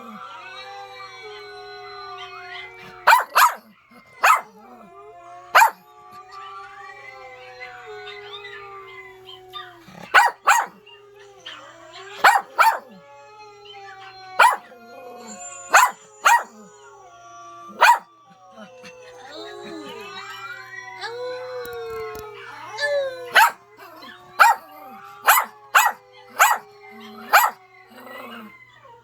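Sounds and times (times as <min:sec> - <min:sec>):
dogs howling: 0:00.0 - 0:29.0
loud sharp dog barks: 0:03.1 - 0:03.6, 0:04.2 - 0:04.5, 0:05.6 - 0:05.8, 0:10.1 - 0:10.8, 0:12.2 - 0:12.8, 0:14.4 - 0:14.6, 0:15.7 - 0:16.5, 0:17.8 - 0:18.0, 0:25.2 - 0:26.6, 0:27.3 - 0:27.6.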